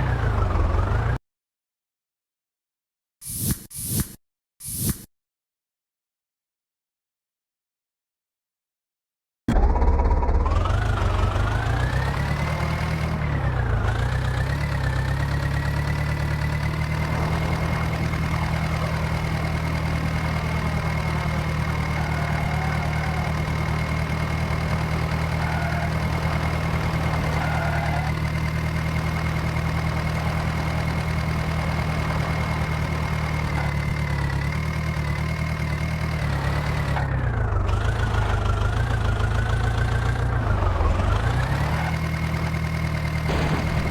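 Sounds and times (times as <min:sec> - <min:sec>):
heavy diesel engine revving: 0:09.5 - 0:43.9.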